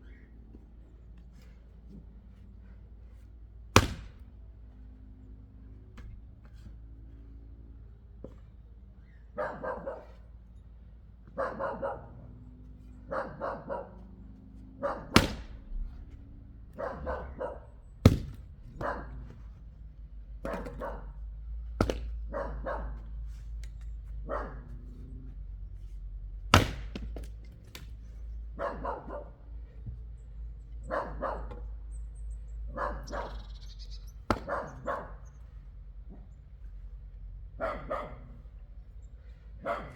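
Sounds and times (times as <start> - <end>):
axe striking wood: 3.7 - 4.3, 15.1 - 15.8, 18.0 - 18.9, 20.4 - 20.9, 21.8 - 22.2, 26.5 - 27.9, 34.2 - 34.6
dog barking: 9.3 - 10.3, 11.3 - 12.4, 13.0 - 14.2, 14.8 - 15.2, 16.7 - 17.8, 18.8 - 19.3, 20.4 - 21.2, 22.3 - 23.1, 24.2 - 25.1, 28.5 - 29.4, 30.8 - 31.7, 32.7 - 33.5, 34.3 - 35.3, 37.6 - 38.4, 39.6 - 39.9.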